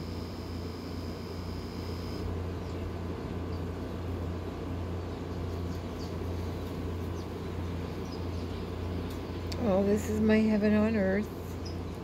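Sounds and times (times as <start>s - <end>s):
small birds chirping: 2.4s - 12.0s.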